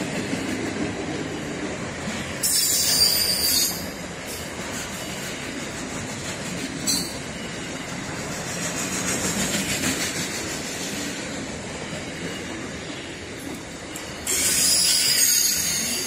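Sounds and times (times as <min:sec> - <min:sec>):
train wagons rumbling and rattling: 0:00.0 - 0:16.0
high wheel squeal: 0:02.4 - 0:04.0, 0:14.0 - 0:16.0.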